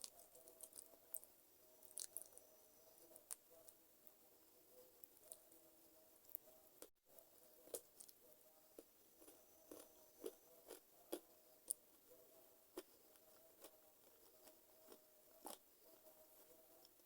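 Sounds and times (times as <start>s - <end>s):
chewing crunchy food: 0.0s - 3.8s, 7.6s - 12.1s, 12.7s - 17.0s.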